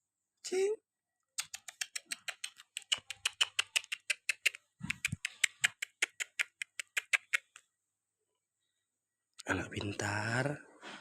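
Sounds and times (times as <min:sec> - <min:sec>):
person making tongue clicks: 0:01.4 - 0:07.6.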